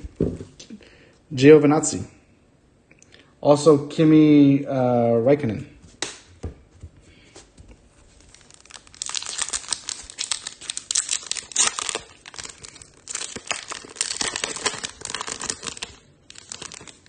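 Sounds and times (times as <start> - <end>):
wrapper crinkling and tearing: 8.1 - 17.0.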